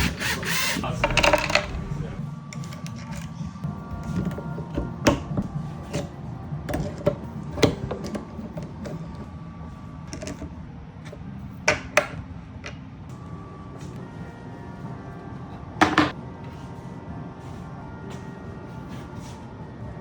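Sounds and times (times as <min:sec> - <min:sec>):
steady low hum: 0:00.0 - 0:02.4.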